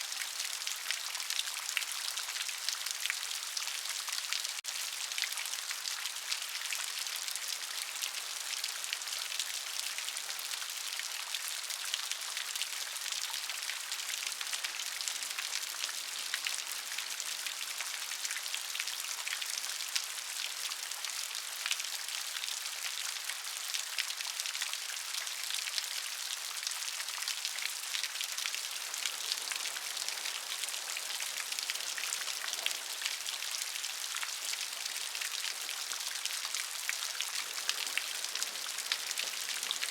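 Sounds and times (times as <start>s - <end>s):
steady rain: 0.0s - 39.9s
raindrops ticking on a surface: 13.2s - 39.9s.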